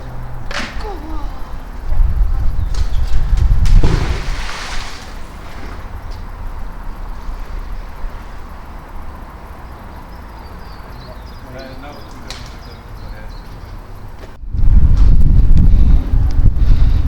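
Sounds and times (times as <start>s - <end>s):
magnet splashing into water: 3.6s - 5.7s.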